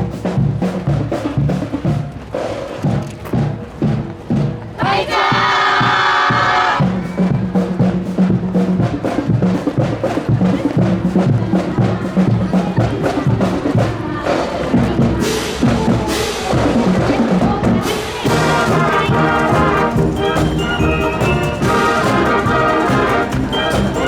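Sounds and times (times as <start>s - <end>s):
drum strikes: 0.0s - 24.0s
marching band playing: 0.0s - 24.0s
loud held brass chord: 18.3s - 24.0s.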